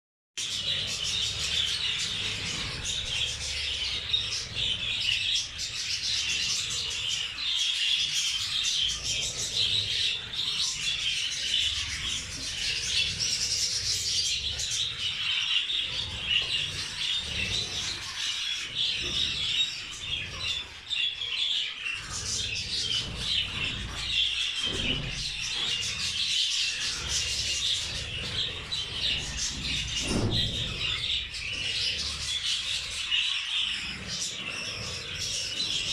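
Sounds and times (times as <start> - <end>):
budgerigars chattering and chirping: 0.4 - 35.9.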